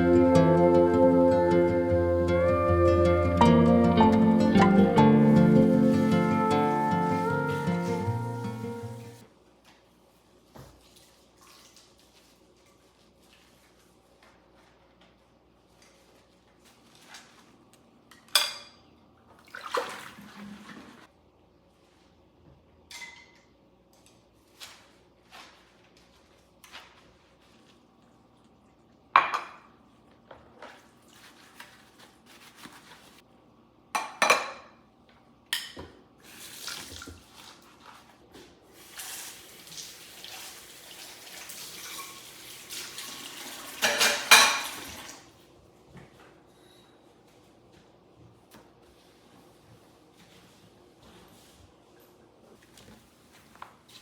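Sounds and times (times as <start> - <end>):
crockery and cutlery clinking: 18.3 - 18.9, 43.8 - 44.8
dishes clattering: 34.0 - 34.8, 43.8 - 44.9.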